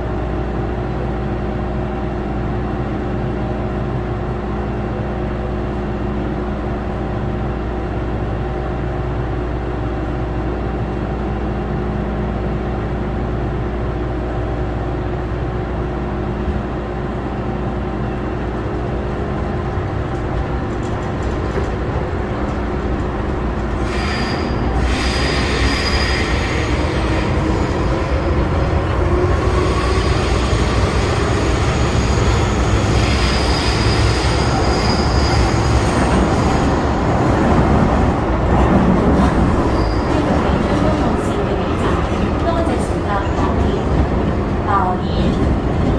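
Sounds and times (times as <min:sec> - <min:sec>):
train rolling on rails: 0:00.0 - 0:45.9
wheel squeal: 0:23.9 - 0:26.8.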